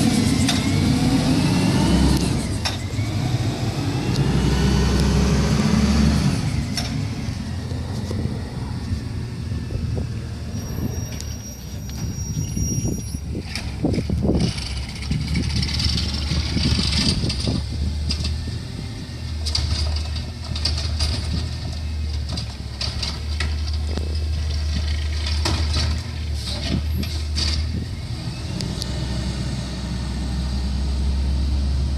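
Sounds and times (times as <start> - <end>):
truck engine running: 0.0 - 12.5.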